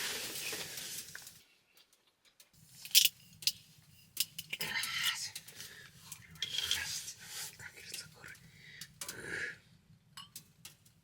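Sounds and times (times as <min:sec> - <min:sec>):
small objects clicking and knocking: 0:00.0 - 0:07.0, 0:10.2 - 0:11.0.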